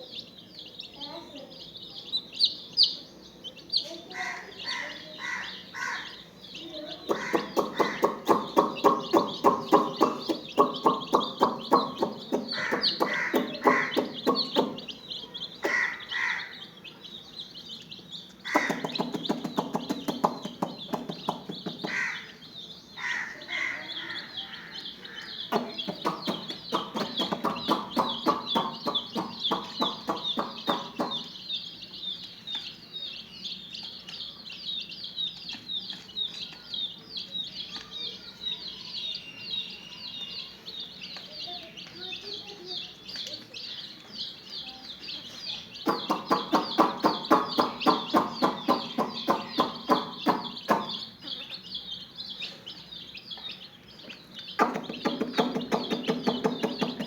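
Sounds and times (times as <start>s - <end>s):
chicks peeping: 0.0s - 57.0s
fast low pulsing sounds: 25.5s - 31.2s.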